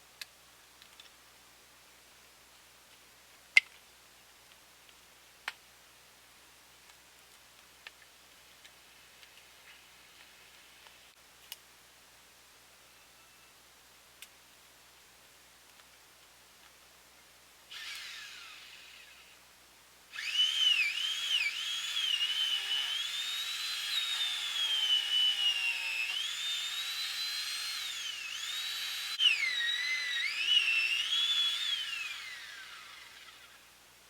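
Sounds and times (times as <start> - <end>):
chainsaw revving: 20.2 - 33.6.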